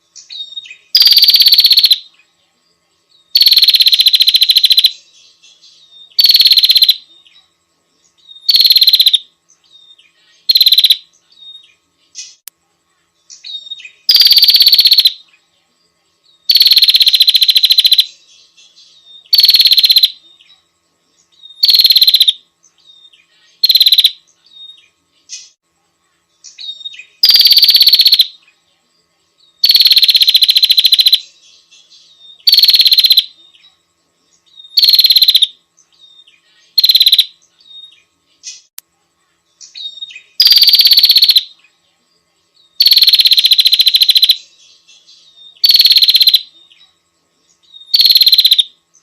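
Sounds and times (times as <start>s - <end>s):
bird buzzy rattling calls: 0.9s - 2.0s, 3.3s - 5.0s, 6.2s - 7.0s, 8.5s - 9.2s, 10.4s - 11.0s, 14.0s - 15.2s, 16.5s - 18.1s, 19.3s - 20.2s, 21.6s - 22.4s, 23.6s - 24.2s, 26.5s - 28.4s, 29.6s - 31.3s, 32.4s - 33.3s, 34.7s - 35.5s, 36.7s - 37.4s, 39.7s - 41.5s, 42.8s - 44.4s, 45.6s - 46.5s, 47.9s - 48.7s.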